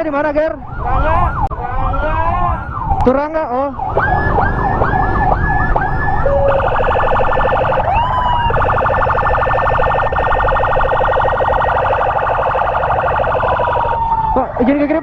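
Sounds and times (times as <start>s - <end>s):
road and engine rumble: 0.0s - 15.0s
electronic emergency siren: 0.1s - 15.0s.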